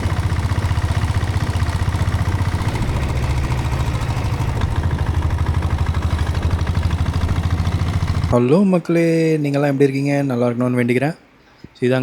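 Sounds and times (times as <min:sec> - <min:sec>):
diesel motorcycle engine idling: 0:00.0 - 0:08.5.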